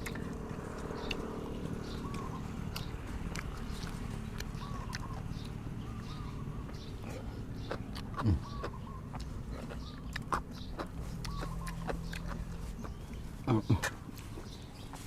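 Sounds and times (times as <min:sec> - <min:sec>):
person chewing food: 0:00.0 - 0:15.0
steady low hum: 0:00.0 - 0:15.0
faint bird chirps: 0:03.6 - 0:15.0.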